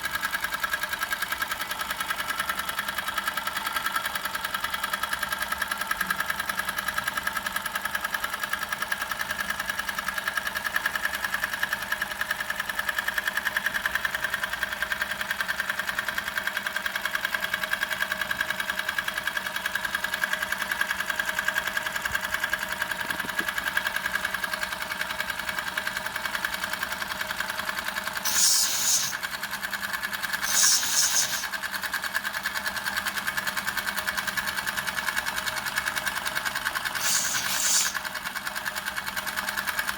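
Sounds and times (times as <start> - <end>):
toy steam engine clatter: 0.0 - 39.9
steam hissing: 28.2 - 29.4, 30.4 - 31.6, 37.0 - 38.2.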